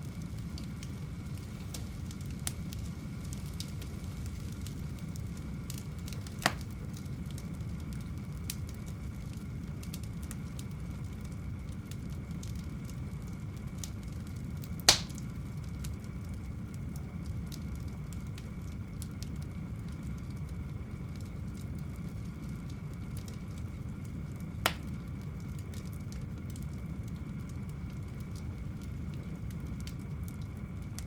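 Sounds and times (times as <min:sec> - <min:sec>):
campfire crackling: 0:00.0 - 0:31.0
loud wood snaps: 0:06.4 - 0:06.7, 0:14.9 - 0:15.3, 0:24.7 - 0:24.9.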